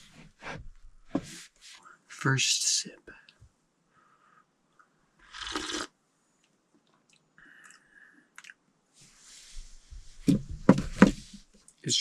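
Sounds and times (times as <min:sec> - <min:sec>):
slurping sip of drink: 0:05.2 - 0:06.0.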